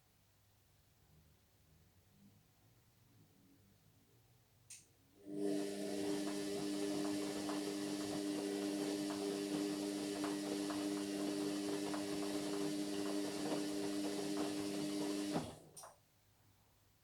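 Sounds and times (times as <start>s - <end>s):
washing machine humming: 5.2s - 15.8s.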